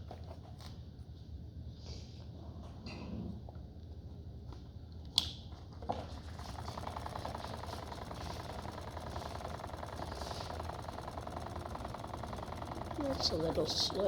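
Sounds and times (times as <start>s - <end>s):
motor buzzing whirr: 6.2s - 14.0s.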